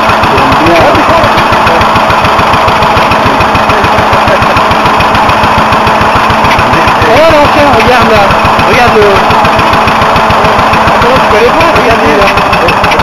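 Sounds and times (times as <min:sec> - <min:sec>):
stationary engine running: 0:00.0 - 0:13.0.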